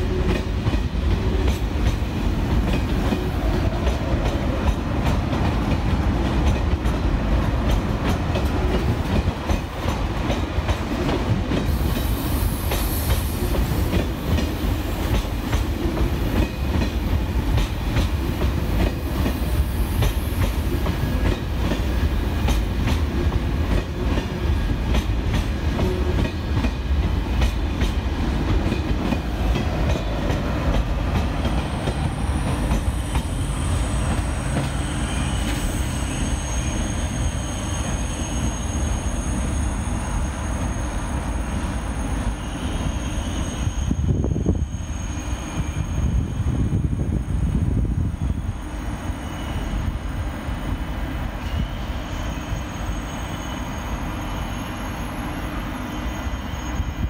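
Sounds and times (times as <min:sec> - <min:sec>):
train rumble: 0:00.0 - 0:57.0
train wheels clicking over rail joints: 0:00.1 - 0:36.0.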